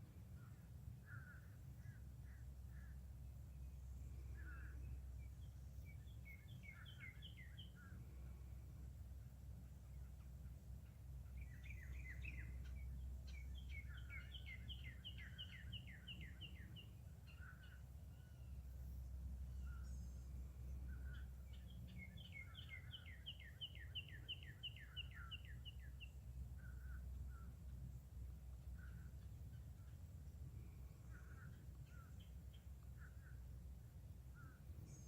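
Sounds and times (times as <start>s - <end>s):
faint low rumble: 0.0s - 35.0s
songbird singing whistled notes: 3.6s - 8.0s, 10.9s - 27.8s.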